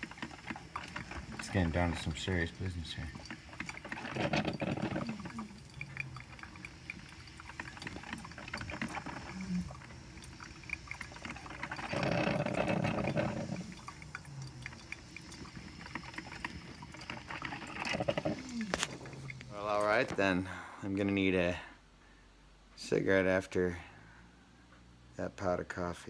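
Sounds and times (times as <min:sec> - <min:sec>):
hissing gurgle: 0:00.0 - 0:20.2
coffee maker gurgling: 0:00.0 - 0:20.4.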